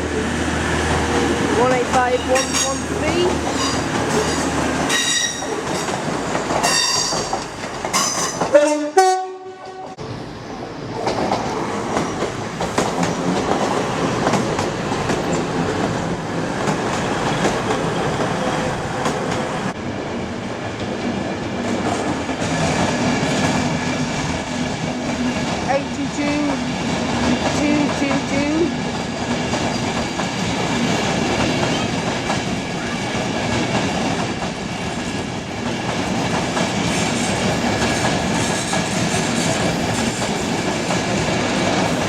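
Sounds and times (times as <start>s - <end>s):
train rumble and wheel clatter: 0.0s - 42.0s
train horn: 8.5s - 10.0s.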